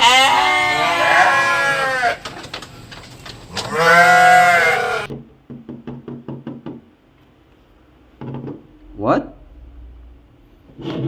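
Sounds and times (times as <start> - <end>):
goat bleating: 0.0 - 2.3, 3.6 - 5.1.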